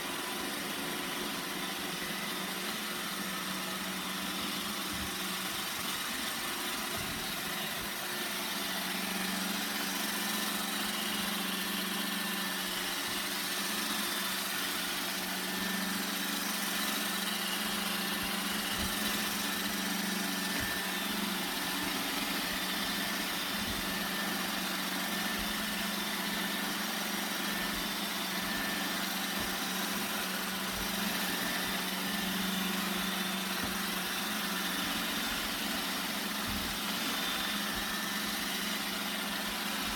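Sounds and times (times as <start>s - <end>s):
robot vacuum running: 0.0s - 39.9s.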